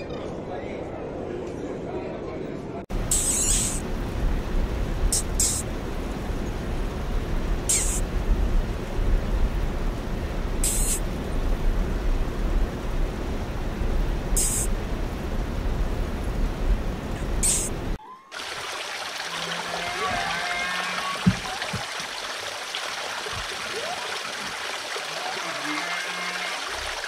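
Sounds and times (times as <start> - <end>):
mink hissing: 3.1 - 3.8, 5.1 - 5.6, 7.7 - 8.0, 10.6 - 11.0, 14.4 - 14.7, 17.4 - 17.7
low rumbling background: 3.8 - 18.0.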